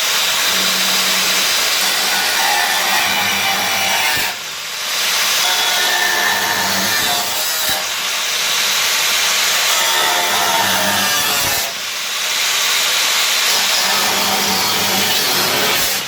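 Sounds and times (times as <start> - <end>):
cutting disc slicing sheet steel: 0.4 - 8.0, 9.5 - 11.8, 13.5 - 16.0.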